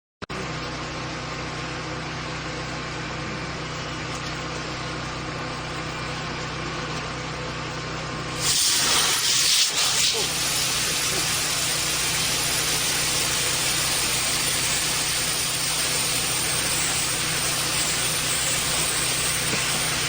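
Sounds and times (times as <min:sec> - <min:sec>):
rocket test stand humming: 0:00.3 - 0:20.0
loud rushing hiss of gas: 0:08.4 - 0:20.0.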